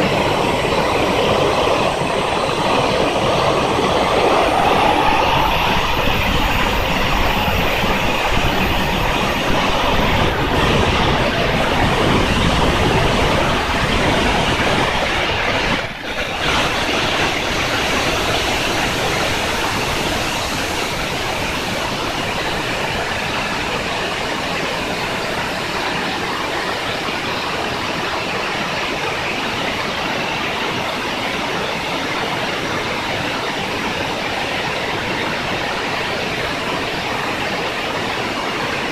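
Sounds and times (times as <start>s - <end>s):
thin high whine: 0.0s - 13.8s
turbine engine rushing: 0.0s - 38.9s.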